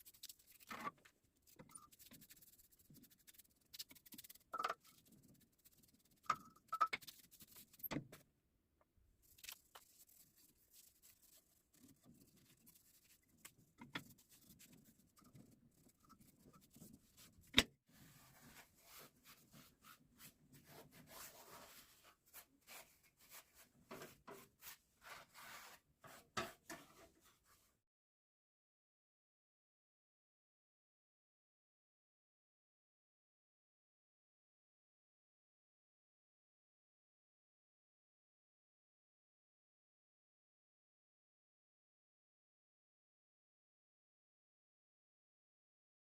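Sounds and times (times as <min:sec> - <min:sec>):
faint rubbing and scraping: 0:00.0 - 0:07.9, 0:09.2 - 0:27.8.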